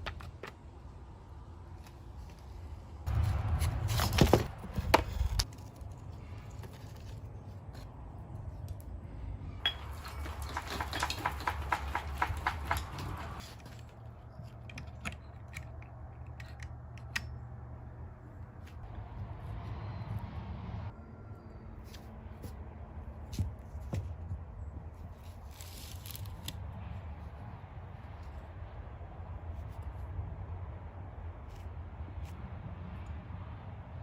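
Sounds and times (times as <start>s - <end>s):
tools clicking and knocking: 9.6s - 13.8s, 14.4s - 17.4s.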